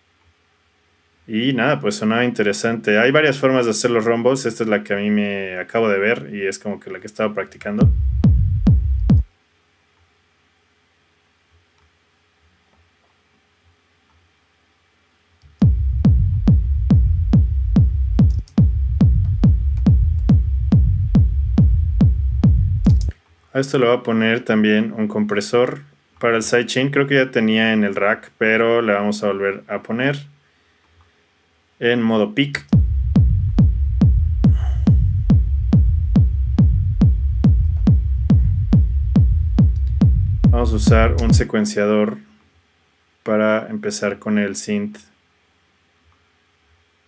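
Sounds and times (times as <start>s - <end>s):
deep techno rumble: 7.8s - 9.3s, 15.5s - 23.1s, 32.6s - 41.5s
kick drum beat: 7.8s - 9.3s, 15.5s - 23.1s, 32.7s - 41.5s.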